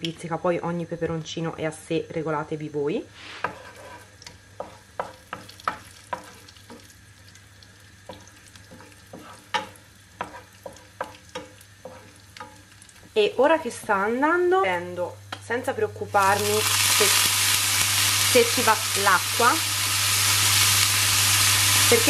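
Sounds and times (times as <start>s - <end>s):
garlic sizzling in oil: 3.1s - 22.0s
wooden spoon scraping a pan: 3.2s - 6.8s, 8.1s - 14.1s.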